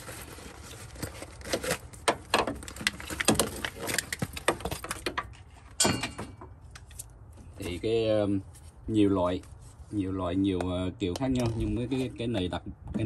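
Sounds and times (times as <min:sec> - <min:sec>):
scraping rustle: 0:00.0 - 0:05.8, 0:06.9 - 0:10.3.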